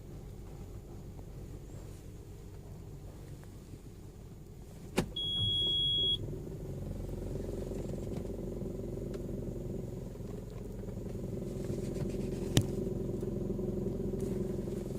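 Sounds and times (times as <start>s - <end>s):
engine and road noise drone: 0.0s - 14.9s
high beep: 5.2s - 6.2s.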